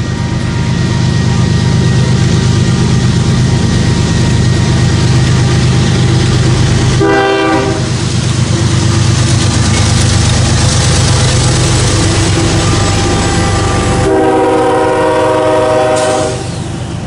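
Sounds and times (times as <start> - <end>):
diesel locomotive engines running: 0.0 - 17.0
locomotive horn: 7.0 - 8.0, 11.4 - 16.6.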